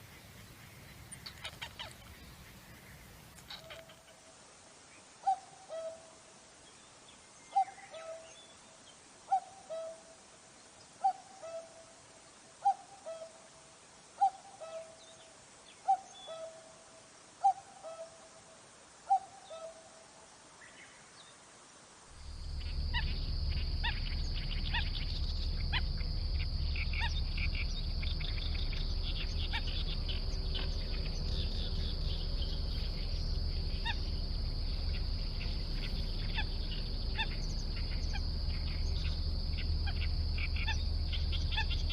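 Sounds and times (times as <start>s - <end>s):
low rumbling noise: 22.0s - 41.9s.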